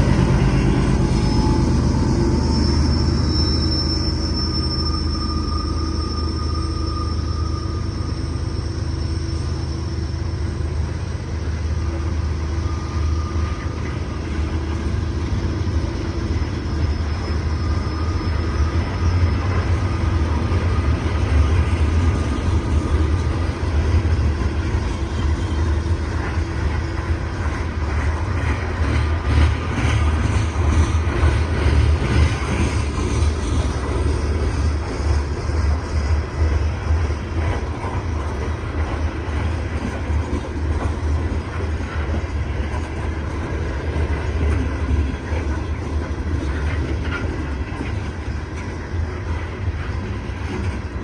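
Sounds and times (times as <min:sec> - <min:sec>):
thin wheel squeals: 0:00.0 - 0:27.7
train wheels rumbling on rails: 0:00.0 - 0:51.0.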